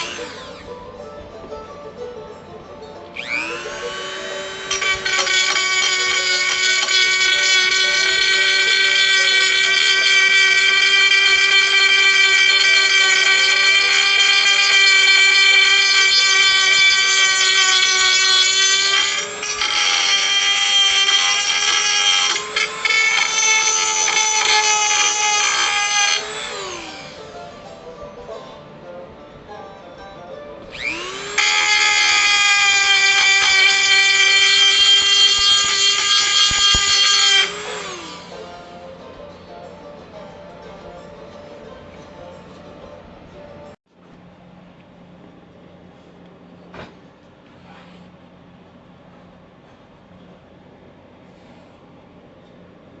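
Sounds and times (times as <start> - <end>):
drill press motor whining: 0.0 - 0.7, 3.0 - 28.0, 30.6 - 39.4.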